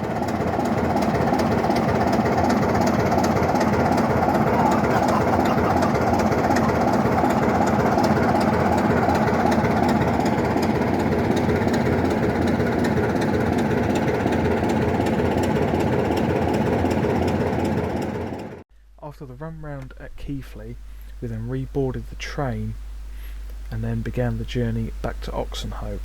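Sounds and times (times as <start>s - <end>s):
diesel locomotive engine throbbing: 0.0s - 18.6s.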